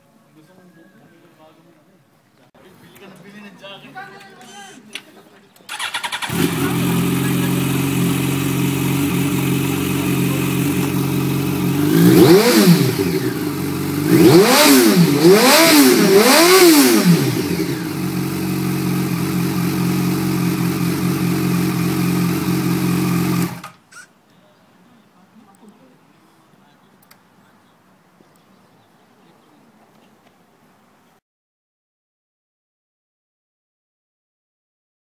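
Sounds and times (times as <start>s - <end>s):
motorcycle engine idling and revving: 5.7s - 23.8s.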